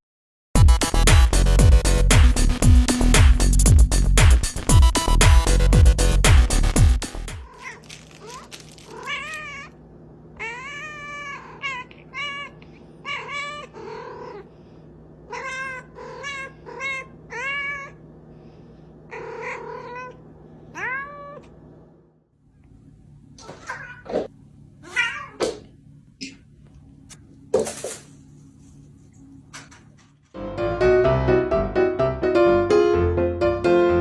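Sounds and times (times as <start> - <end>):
cat meowing: 7.5 - 9.8, 10.4 - 14.5, 15.3 - 18.0, 19.1 - 21.5, 23.4 - 24.1, 24.8 - 25.4.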